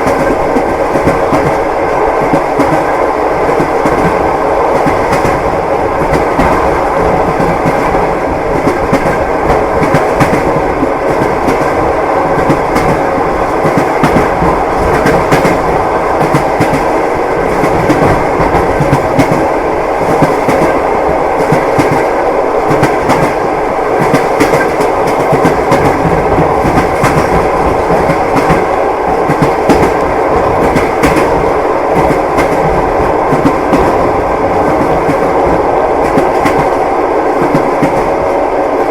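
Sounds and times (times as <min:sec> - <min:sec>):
train wheels knocking on rail joints: 0:00.0 - 0:38.4
railway carriage rumble: 0:00.0 - 0:38.9.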